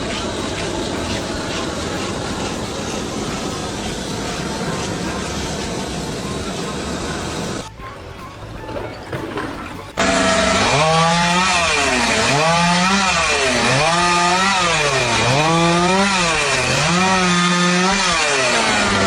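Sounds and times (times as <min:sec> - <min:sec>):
steady hiss: 0:00.0 - 0:07.7
motor pitch rising and falling: 0:10.0 - 0:19.0.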